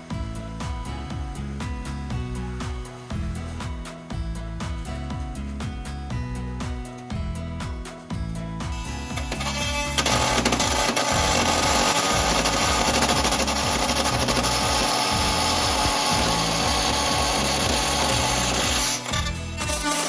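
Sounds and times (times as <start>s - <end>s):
background music with bass: 0.0s - 20.0s
power tool cutting: 9.2s - 20.0s.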